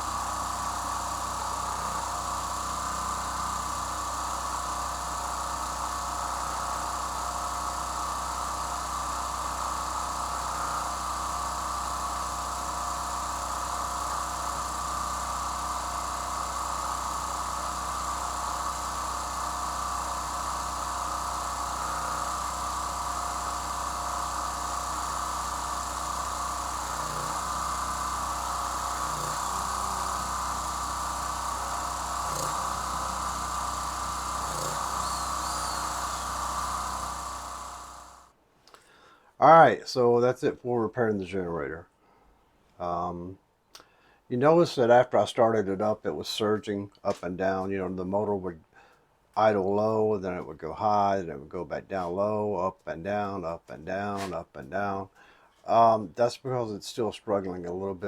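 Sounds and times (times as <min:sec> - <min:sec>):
generator engine running: 0:00.0 - 0:39.0.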